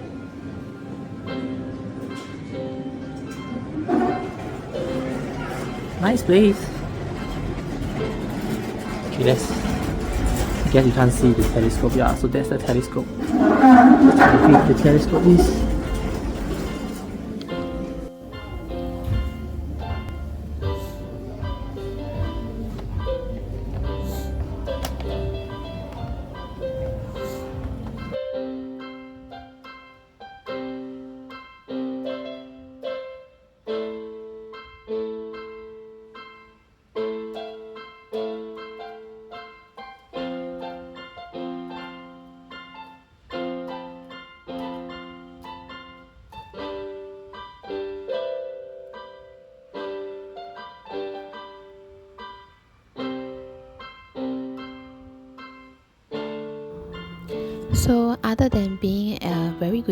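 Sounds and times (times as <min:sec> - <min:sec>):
slow piano chords: 0:00.0 - 0:59.9.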